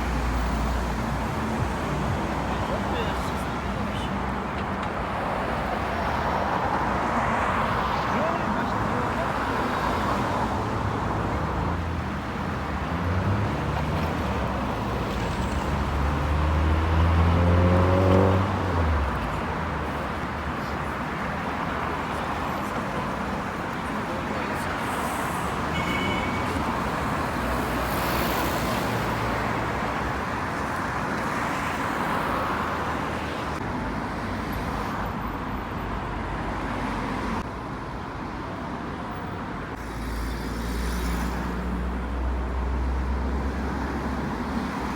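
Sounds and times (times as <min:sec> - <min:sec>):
road traffic hum: 0:00.0 - 0:44.9.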